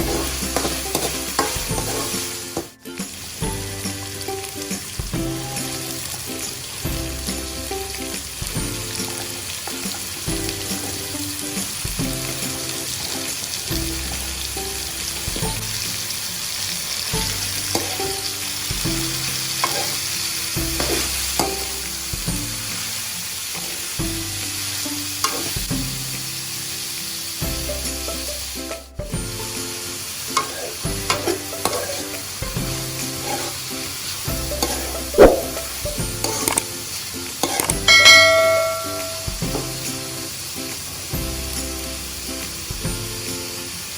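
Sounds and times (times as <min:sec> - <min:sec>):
spatula scraping a pan: 0:00.0 - 0:02.7, 0:17.2 - 0:18.4, 0:19.0 - 0:21.8, 0:25.2 - 0:25.6, 0:30.3 - 0:36.6, 0:37.4 - 0:39.3
food sizzling in a pan: 0:00.0 - 0:43.9.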